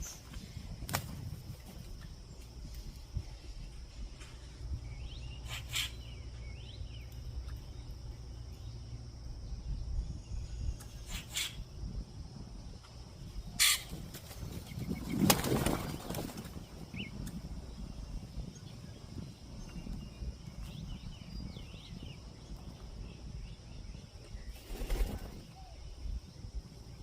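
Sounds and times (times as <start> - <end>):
dove wings flapping: 0.2 - 2.0, 13.6 - 16.9, 24.5 - 25.5.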